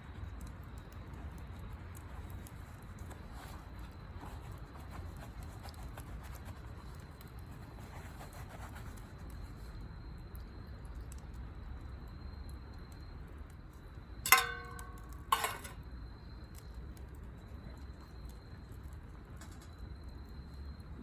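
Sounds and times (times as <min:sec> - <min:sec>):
sharp metal clinks: 0:14.3 - 0:15.8.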